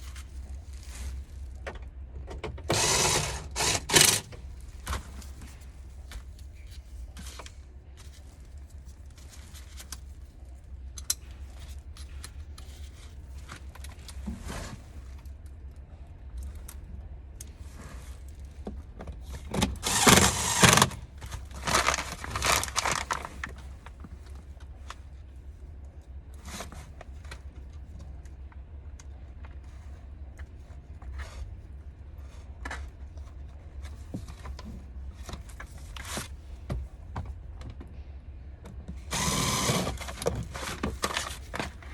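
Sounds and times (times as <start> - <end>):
rattling and scraping: 0.0 - 5.6, 19.3 - 24.2
steady low hum: 0.0 - 41.9.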